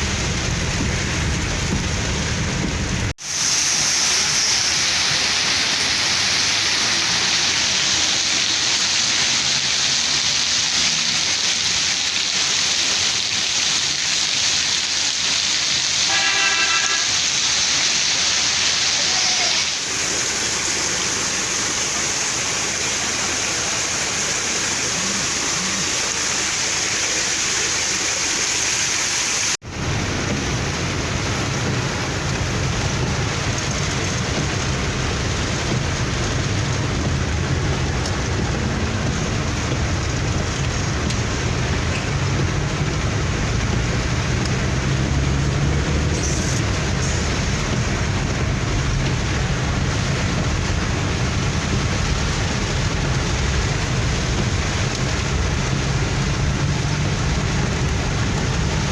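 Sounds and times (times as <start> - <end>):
heavy rain: 0.0 - 58.9
car driving: 29.6 - 58.9.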